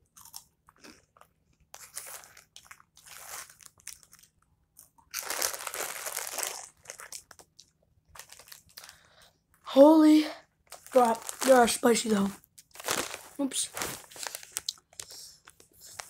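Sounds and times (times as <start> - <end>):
snack crunching: 0.0 - 9.0, 14.0 - 15.1.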